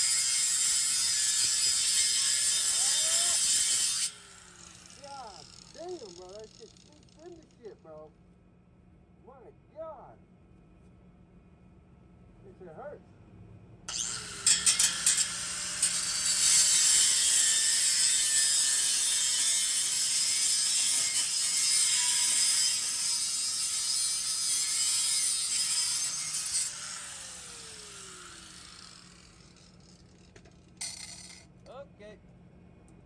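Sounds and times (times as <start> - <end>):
angle grinder cutting metal pipe: 0.0 - 7.2, 13.9 - 30.0.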